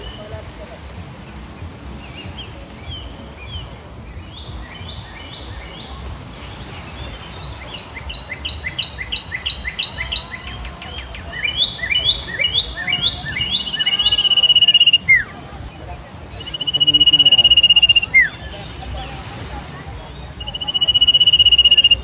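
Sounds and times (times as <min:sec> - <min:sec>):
bird singing high notes: 0:07.0 - 0:15.3, 0:16.3 - 0:18.8, 0:20.4 - 0:22.0.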